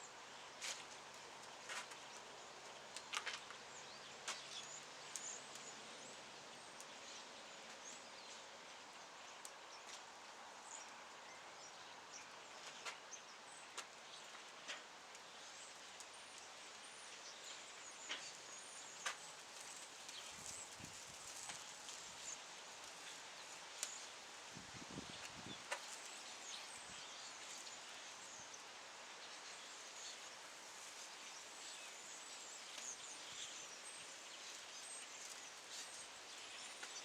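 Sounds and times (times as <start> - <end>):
faint steady hiss: 0.0 - 37.0
campfire crackling and popping: 18.0 - 24.2, 25.2 - 26.2.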